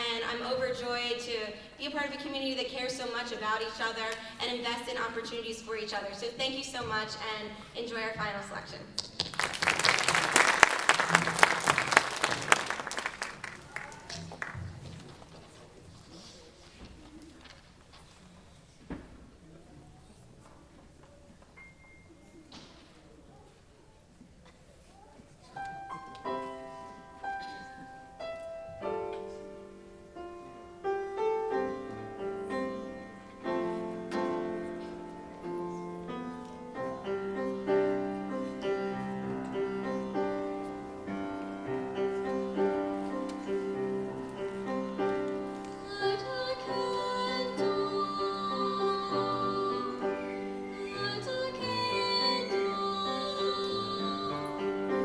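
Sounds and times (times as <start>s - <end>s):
choir singing held notes: 25.6s - 55.0s
piano chords: 25.6s - 55.0s.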